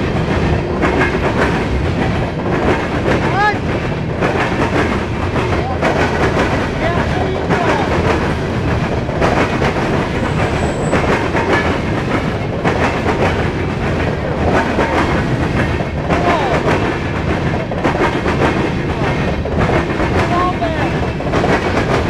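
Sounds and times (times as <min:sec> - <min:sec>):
rhythmic clickety-clack over rail joints: 0:00.0 - 0:22.0
train wheels rumbling on rail: 0:00.0 - 0:22.0
brief wheel squeals: 0:10.2 - 0:11.2.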